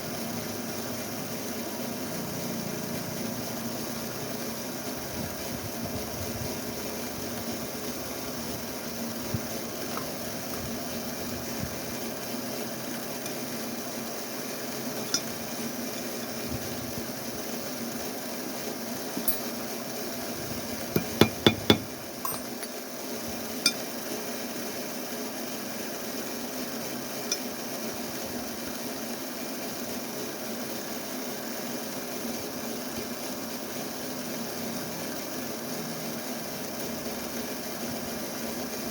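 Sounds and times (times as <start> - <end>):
metal parts clicking and clinking: 19.2 - 19.6, 22.2 - 22.8
steady low hum: 19.2 - 22.7.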